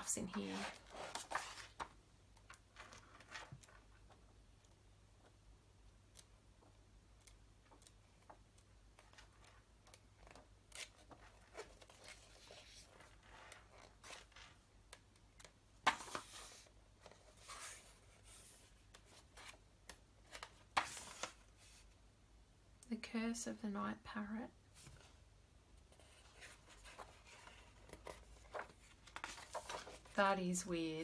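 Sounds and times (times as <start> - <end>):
magazine pages turning: 0.0 - 2.0, 2.7 - 3.8, 9.0 - 14.6, 15.4 - 19.6, 20.3 - 21.9, 26.0 - 30.7.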